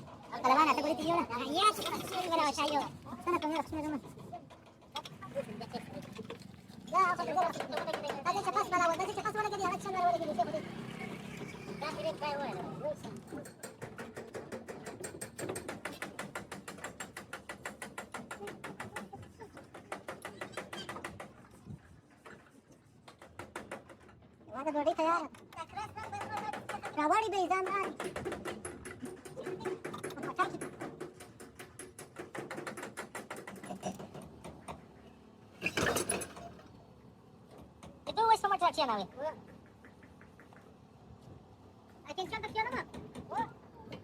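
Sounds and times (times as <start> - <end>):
rapid mechanical clicking: 25.5 - 34.8.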